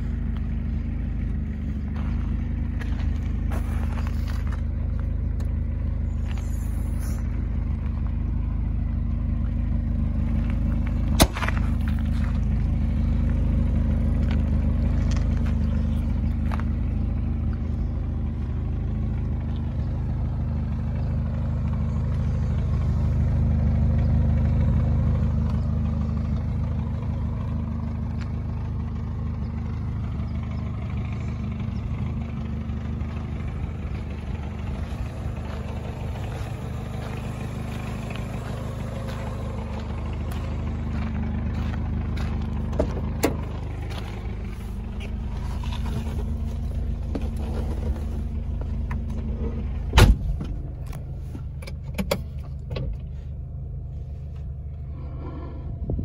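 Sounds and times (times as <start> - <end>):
car engine idling: 0.0 - 56.0
engine pop: 10.5 - 12.4, 46.8 - 53.1.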